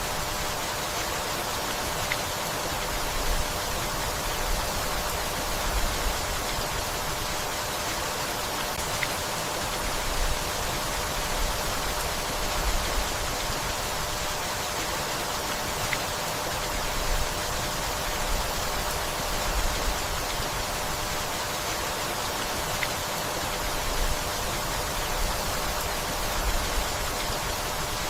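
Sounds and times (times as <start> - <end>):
rain on leaves and wood: 0.6 - 28.0.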